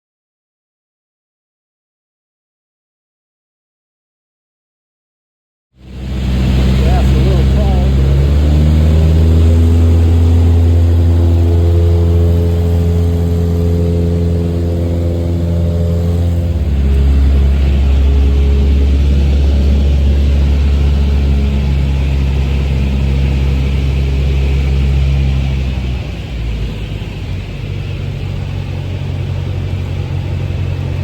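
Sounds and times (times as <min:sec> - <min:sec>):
propeller airplane droning: 0:05.8 - 0:31.0.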